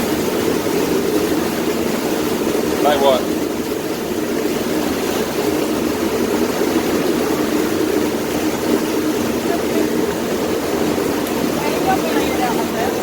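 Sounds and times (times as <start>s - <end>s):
boat engine droning: 0.0s - 13.0s
water and wind noise: 0.0s - 13.0s.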